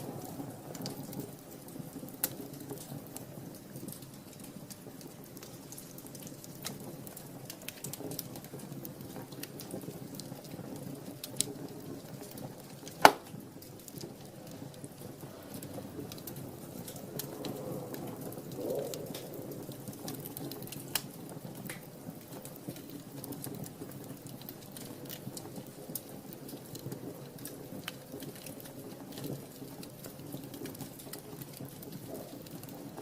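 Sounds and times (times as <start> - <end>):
fire burning in fireplace: 0.0 - 33.0
fire crackles: 0.0 - 33.0
loud fire pop: 12.9 - 13.4.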